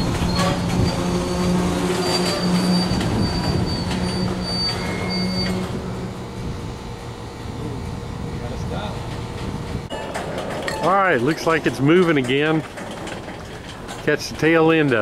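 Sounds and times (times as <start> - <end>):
high-pitched wheel and brake squeals: 0.0 - 6.1
train cars clanking: 0.0 - 6.4, 8.8 - 15.0.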